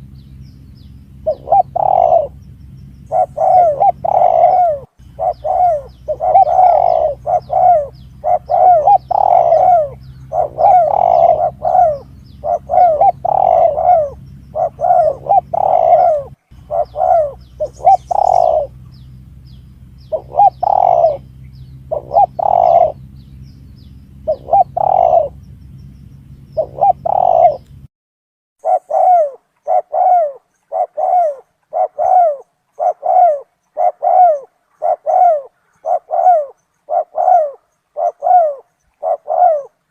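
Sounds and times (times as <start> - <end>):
low steady hum: 0.0 - 27.9
dove cooing: 1.1 - 25.6, 26.2 - 27.9, 28.6 - 39.9.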